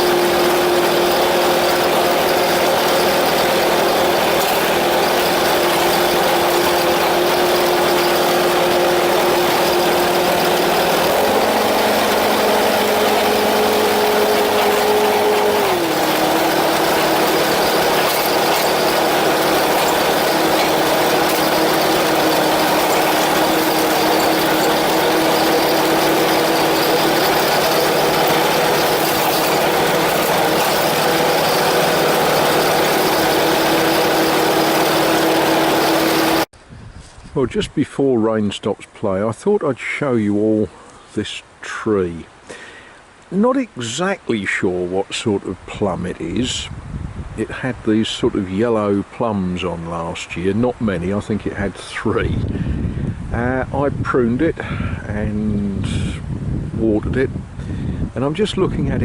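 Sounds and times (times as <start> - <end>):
ride-on lawnmower engine: 0.0 - 36.5.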